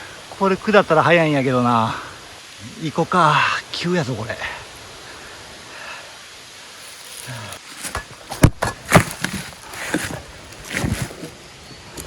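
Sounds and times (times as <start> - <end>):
quiet hiss: 0.0 - 12.0
footsteps on soil and leaves: 6.8 - 11.4.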